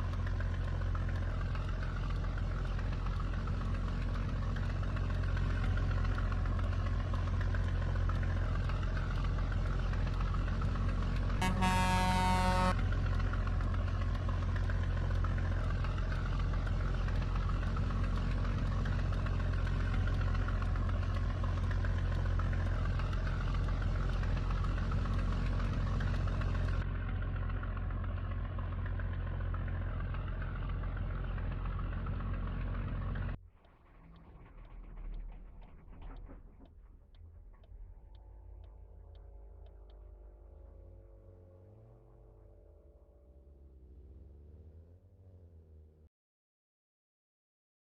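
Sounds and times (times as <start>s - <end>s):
diesel truck engine droning: 0.0s - 46.0s
truck horn: 11.3s - 13.1s.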